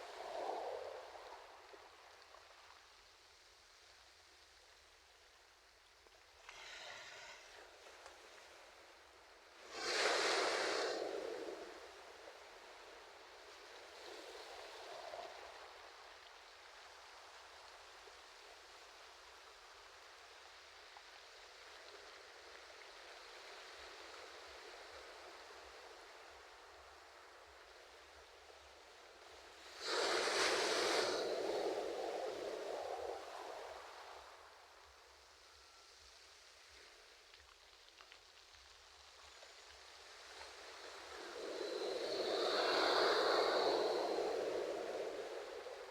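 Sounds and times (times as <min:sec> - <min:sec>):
surf hissing: 0:06.5 - 0:07.9, 0:09.6 - 0:12.8, 0:29.3 - 0:34.4, 0:40.0 - 0:45.9.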